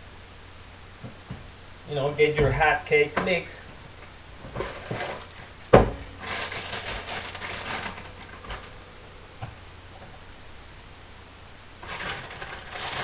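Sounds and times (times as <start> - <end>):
package rustling: 4.5 - 5.5, 6.1 - 8.8, 11.8 - 13.0.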